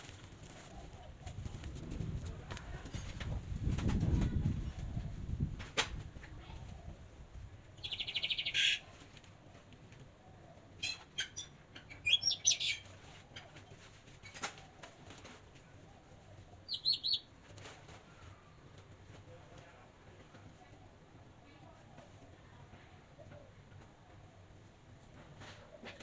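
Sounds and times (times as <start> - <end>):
small birds chirping: 7.8 - 8.9, 10.8 - 12.9, 16.6 - 17.3.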